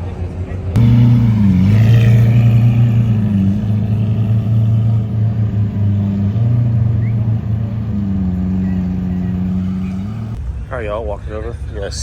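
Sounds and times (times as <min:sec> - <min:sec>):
car engine running: 0:00.8 - 0:10.4.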